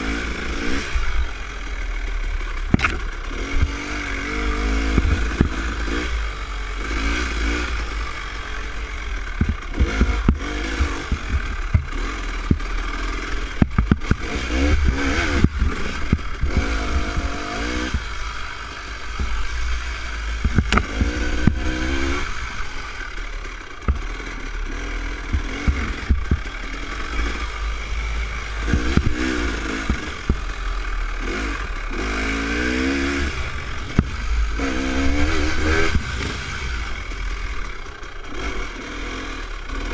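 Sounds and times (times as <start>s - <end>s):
dirt bike engine revving: 0.0s - 39.9s
bike knocks and rattles: 2.6s - 3.9s, 4.8s - 6.1s, 9.2s - 18.3s, 20.4s - 22.8s, 23.5s - 32.0s, 32.8s - 38.8s.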